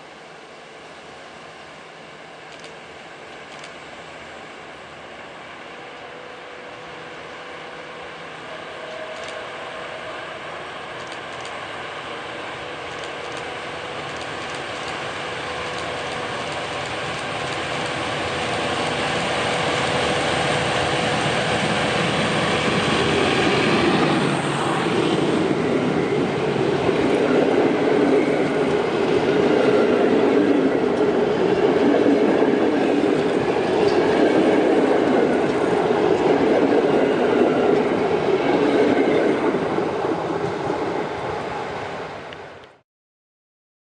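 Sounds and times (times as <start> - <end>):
diesel train approaching: 0.0 - 42.8
wheels rumbling on rails: 2.4 - 42.8.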